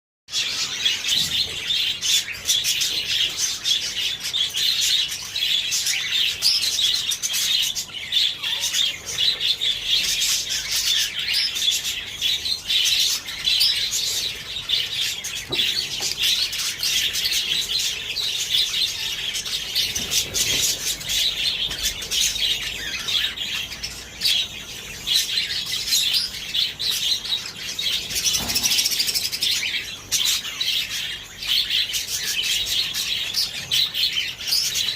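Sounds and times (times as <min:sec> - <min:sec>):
parrots chirping and chattering: 0:00.3 - 0:34.9.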